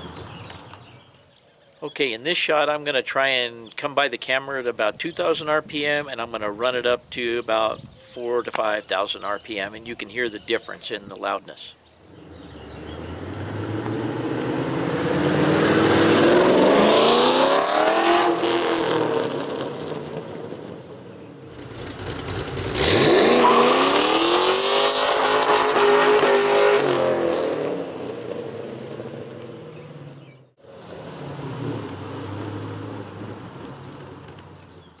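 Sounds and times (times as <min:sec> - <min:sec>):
car engine revving past: 0:12.1 - 0:20.7, 0:21.5 - 0:34.7.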